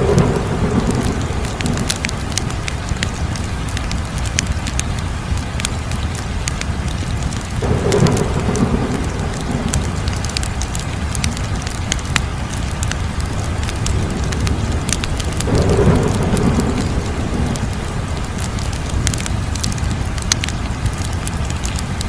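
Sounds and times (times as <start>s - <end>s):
wood fire crackling: 0.0s - 22.0s
low rumble: 7.6s - 12.6s.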